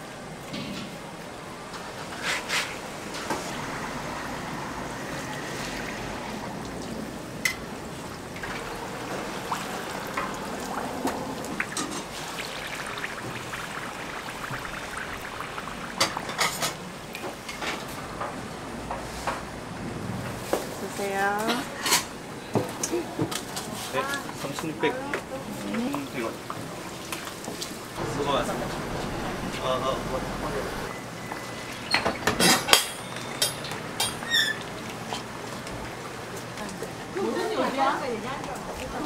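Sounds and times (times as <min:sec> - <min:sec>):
pancake sizzling on griddle: 0:08.4 - 0:17.0.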